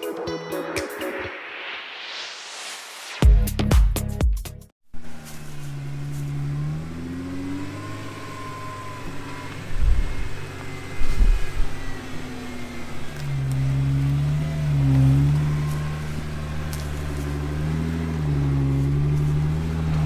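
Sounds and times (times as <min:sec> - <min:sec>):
car engine revving: 0:05.0 - 0:20.0.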